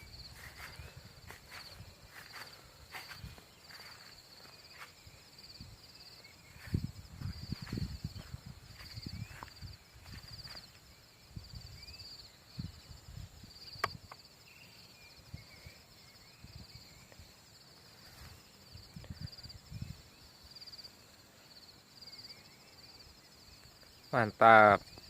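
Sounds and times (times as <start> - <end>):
insects chirping in trills: 0.0 - 25.0
sharp click: 13.8 - 14.2.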